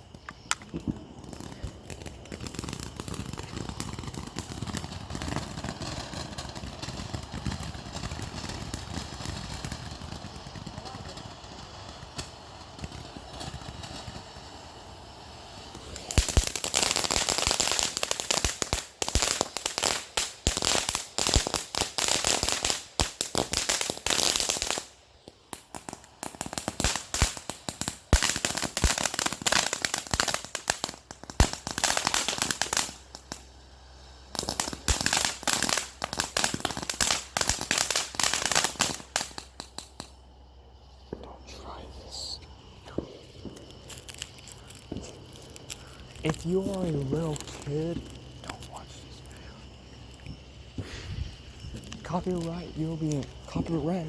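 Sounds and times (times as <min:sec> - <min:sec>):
firecrackers cracking and popping: 0:00.0 - 0:54.0.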